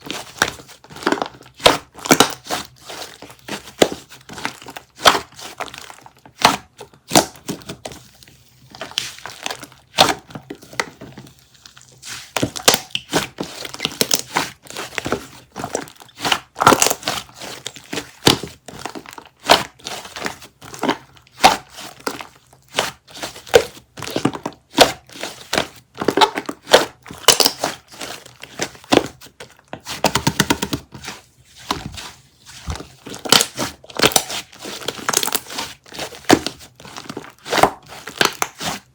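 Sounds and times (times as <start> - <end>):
crinkly material crackling: 0.0 - 6.3, 25.2 - 38.9.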